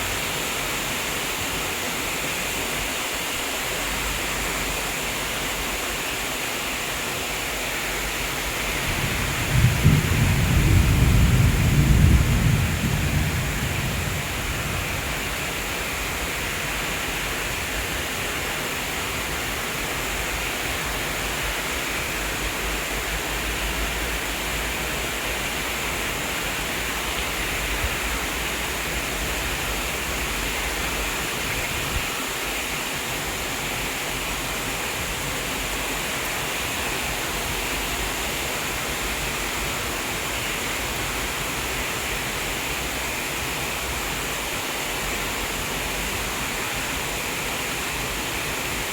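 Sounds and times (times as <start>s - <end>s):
rain falling: 0.0s - 48.9s
low thunder rumble: 8.6s - 16.3s.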